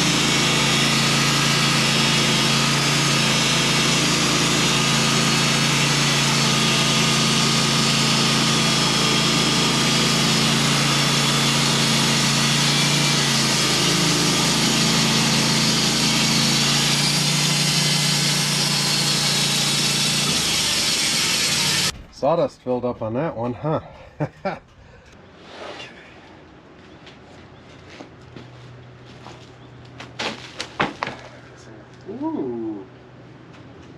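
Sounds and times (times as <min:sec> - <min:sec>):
band sawmill cutting log: 0:00.0 - 0:22.0.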